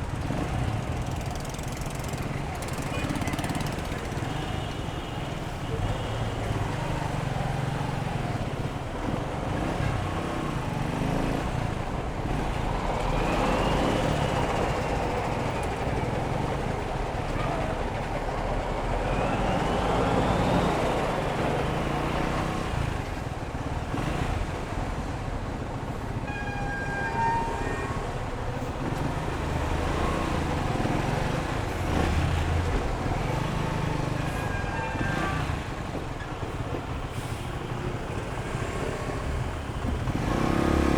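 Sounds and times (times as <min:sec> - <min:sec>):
vehicle horn toots: 0:26.3 - 0:28.1
motorcycle engine revving: 0:38.6 - 0:40.9.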